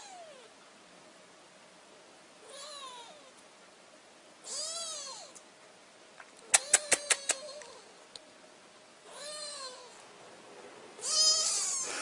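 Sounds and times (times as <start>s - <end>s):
quick sharp clicks: 6.5s - 7.5s
cat meowing: 9.1s - 10.0s, 11.0s - 11.9s.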